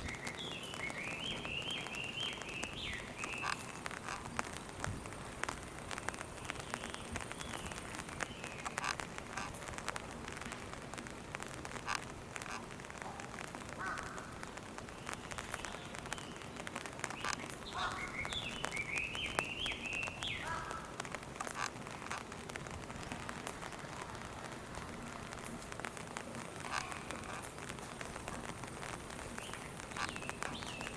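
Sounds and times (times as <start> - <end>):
bird calling: 0.0 - 4.6, 15.0 - 22.2, 29.1 - 30.9
rain pattering: 0.0 - 30.9
water dripping: 0.0 - 30.9.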